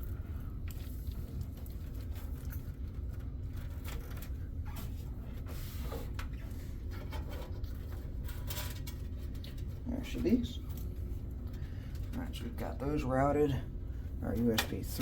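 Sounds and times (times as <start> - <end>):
cables rustling and scraping plastic: 0.0 - 15.0
steady low hum: 0.0 - 15.0.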